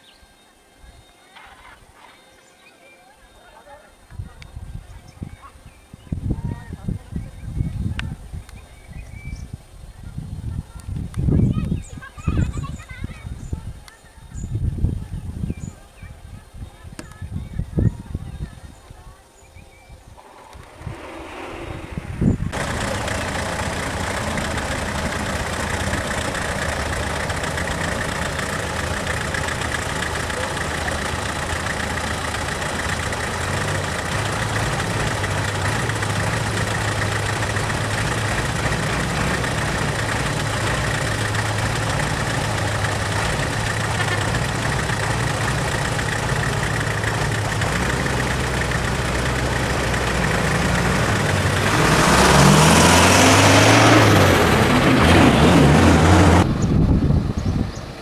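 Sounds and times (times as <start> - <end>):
vehicle engine idling: 20.2 - 58.0.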